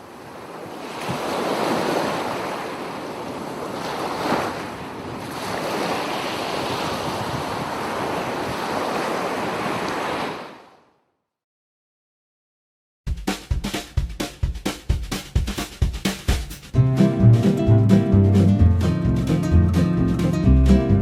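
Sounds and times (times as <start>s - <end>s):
ocean surf washing on shore: 0.0s - 10.8s.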